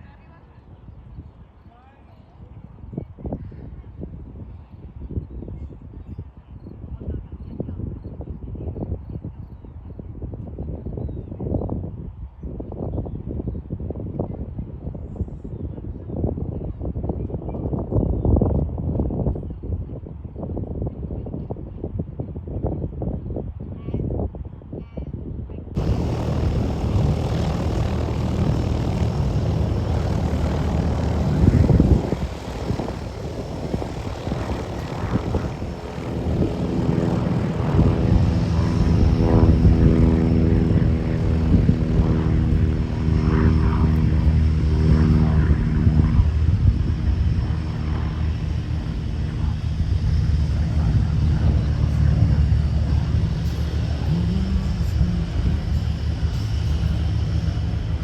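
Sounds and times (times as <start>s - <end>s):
light airplane engine droning: 25.8s - 58.0s
rush of noise: 25.8s - 58.0s.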